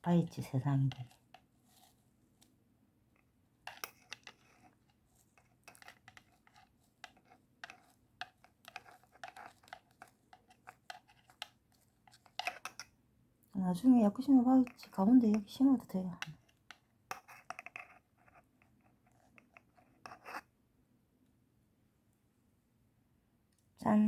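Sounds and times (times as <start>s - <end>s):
soft clicks and rustles: 0.8s - 13.5s.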